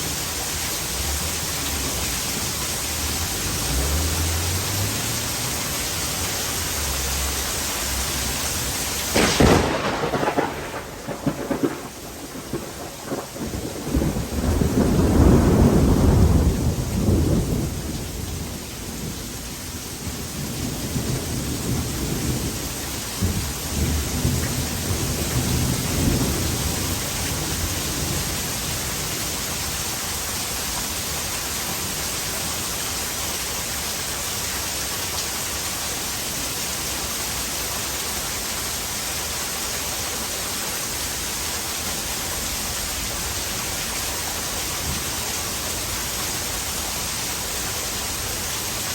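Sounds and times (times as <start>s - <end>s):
heavy rain: 0.0s - 48.9s
thunder rumbling: 7.9s - 29.8s.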